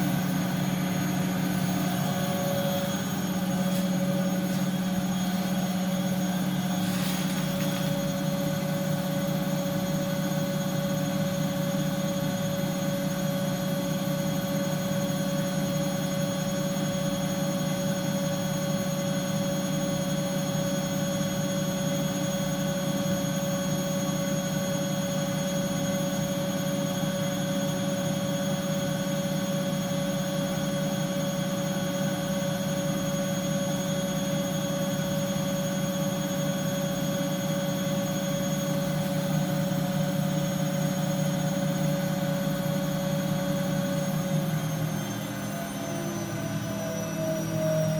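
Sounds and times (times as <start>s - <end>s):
washing machine running: 0.0s - 47.9s.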